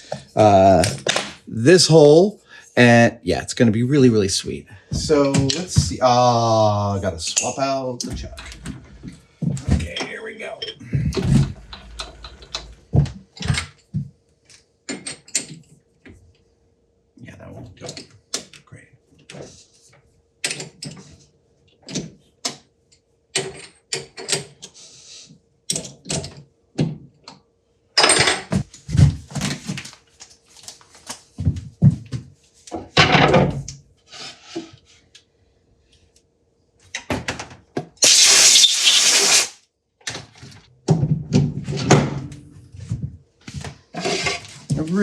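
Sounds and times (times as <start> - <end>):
heavy thuds: 4.8 - 6.1.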